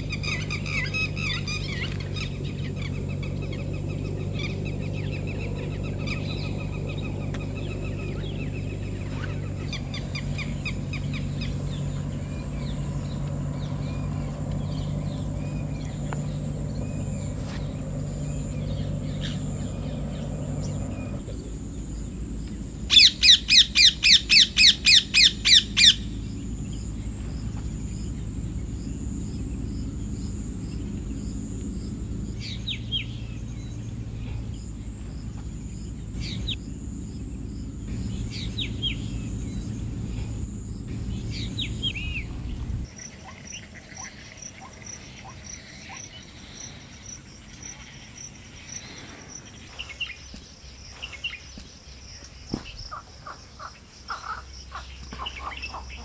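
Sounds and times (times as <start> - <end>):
bird calling rapidly: 0.0 - 46.2, 52.8 - 56.0
bird giving falling calls: 0.0 - 46.8
faint bird chirps: 0.0 - 56.0
steady high outdoor hiss: 0.0 - 56.0
even high ticking: 9.6 - 42.9.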